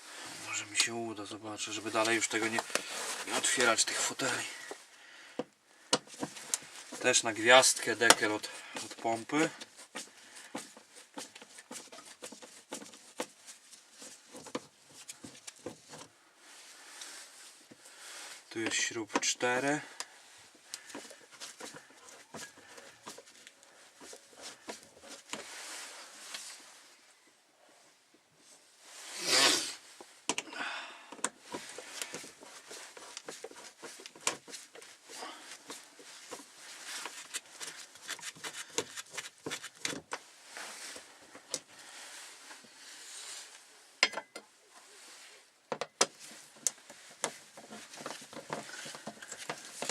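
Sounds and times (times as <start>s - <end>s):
hands rustling: 19.5s - 27.1s, 31.3s - 43.7s, 46.1s - 49.9s
rubbing swish: 28.9s - 29.9s
tools clicking and tapping on plastic: 30.3s - 30.5s, 31.1s - 34.9s, 44.0s - 44.5s, 45.7s - 49.9s
tools clicking and tapping: 44.0s - 44.5s.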